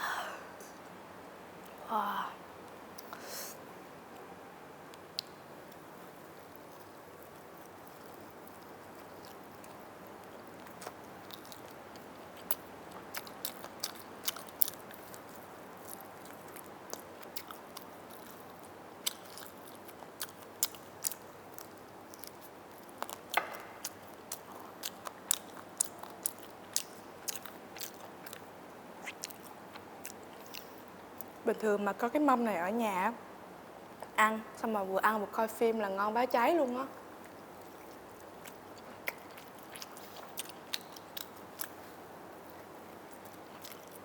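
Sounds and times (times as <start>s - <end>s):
chewing and biting: 6.5s - 30.8s, 37.6s - 44.0s
sharp mouth clicks: 38.4s - 41.8s.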